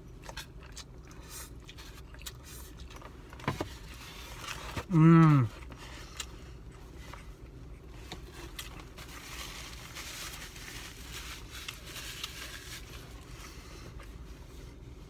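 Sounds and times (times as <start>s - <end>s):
faint chewing: 0.0s - 4.9s
low steady hum: 0.0s - 15.0s.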